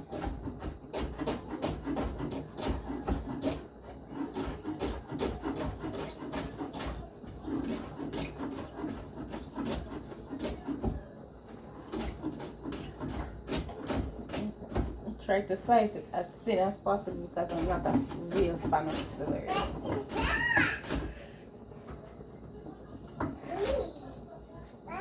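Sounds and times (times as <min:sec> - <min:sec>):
knife chopping celery on board: 0:00.0 - 0:11.0, 0:11.7 - 0:15.0, 0:17.4 - 0:21.2.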